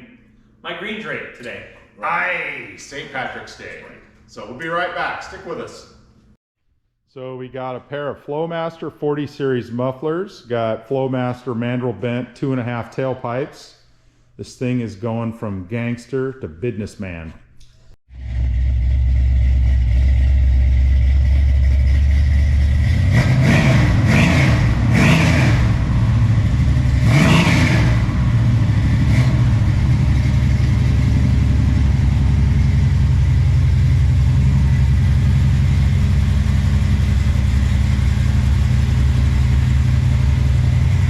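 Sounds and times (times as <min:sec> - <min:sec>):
engine idling and revving: 0:18.1 - 0:41.0.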